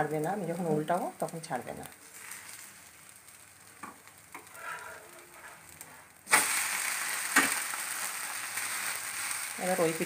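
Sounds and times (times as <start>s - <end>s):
food sizzling on a hot pan: 0.0s - 10.0s.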